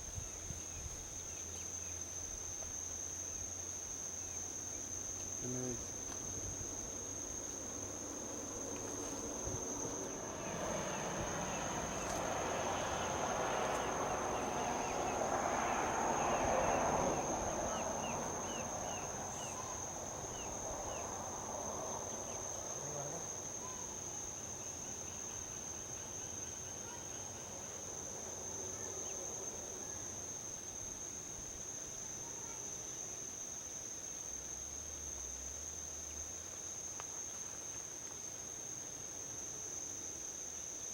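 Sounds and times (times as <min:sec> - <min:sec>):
crickets trilling: 0:00.0 - 0:40.9
vehicle passing on highway: 0:06.0 - 0:23.6.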